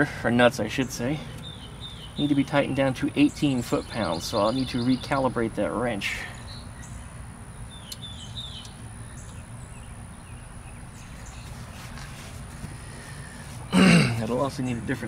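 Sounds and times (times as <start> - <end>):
small bird chirping: 0.8 - 5.5, 6.1 - 13.4.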